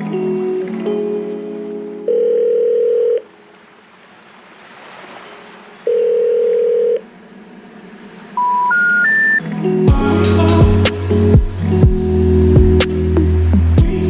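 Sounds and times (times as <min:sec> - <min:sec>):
long electronic beeps: 0:08.4 - 0:10.2
faint hiss: 0:09.9 - 0:13.2.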